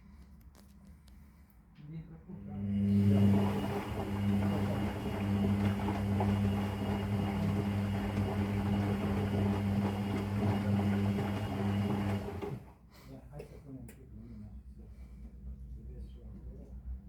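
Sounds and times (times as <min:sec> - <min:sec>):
washing machine electric hum: 0:01.8 - 0:13.1.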